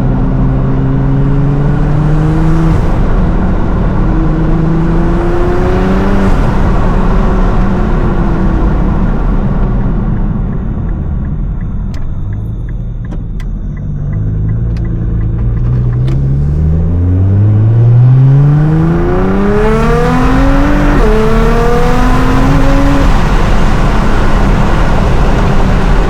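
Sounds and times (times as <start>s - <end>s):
car engine revving: 0.0s - 26.0s
light ticking: 10.1s - 16.2s.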